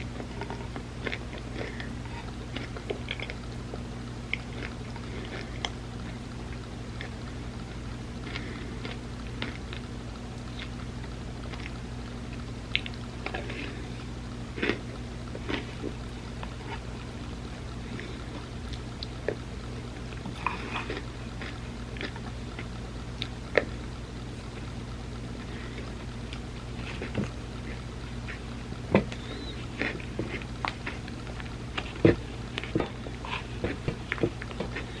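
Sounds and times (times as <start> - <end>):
soft chewing: 0.0 - 35.0
steady low hum: 0.0 - 35.0.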